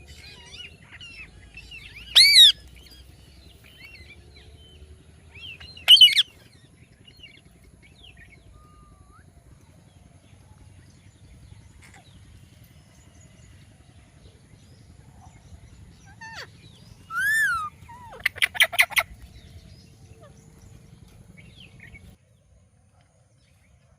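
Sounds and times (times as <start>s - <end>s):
parakeet squawking and calling: 0.2s - 2.7s, 5.3s - 6.4s, 16.0s - 19.2s.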